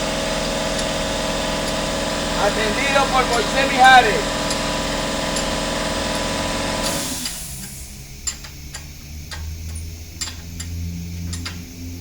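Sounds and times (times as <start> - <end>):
steady machine noise: 0.0 - 12.0
sharp clicks: 7.2 - 11.6.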